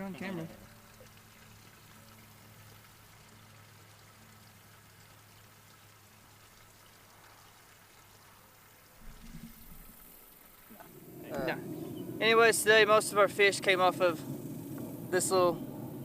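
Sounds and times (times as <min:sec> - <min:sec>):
faint outdoor hiss: 0:00.0 - 0:16.0
steady low hum: 0:08.6 - 0:16.0.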